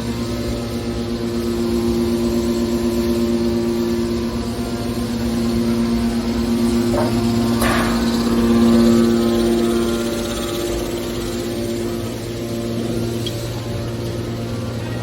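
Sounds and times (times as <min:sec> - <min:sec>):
baler motor humming: 0:03.8 - 0:15.0.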